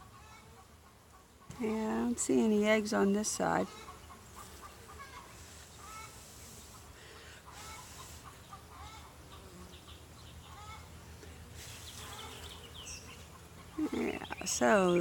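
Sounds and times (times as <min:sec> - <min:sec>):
chickens clucking: 0:03.6 - 0:11.4.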